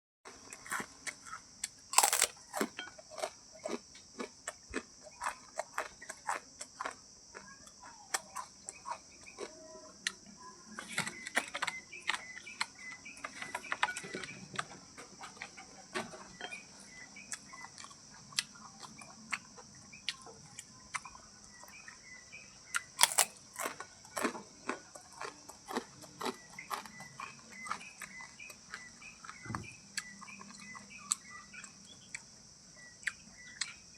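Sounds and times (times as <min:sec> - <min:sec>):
crickets chirping: 0:00.3 - 0:33.9.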